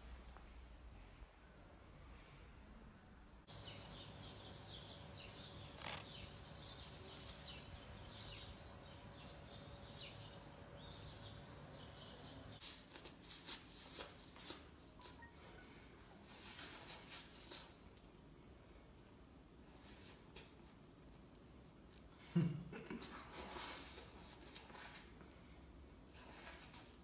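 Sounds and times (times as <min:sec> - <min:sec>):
small birds chirping: 0:03.5 - 0:22.5.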